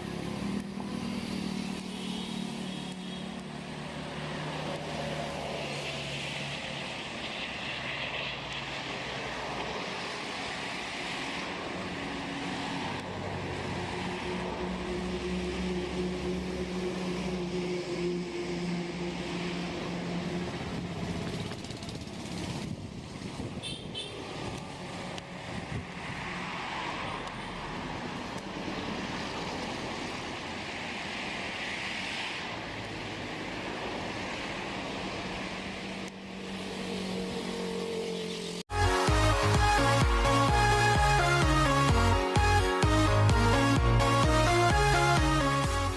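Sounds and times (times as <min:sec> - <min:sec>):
vehicle engine humming: 0:00.0 - 0:08.6, 0:09.5 - 0:30.6.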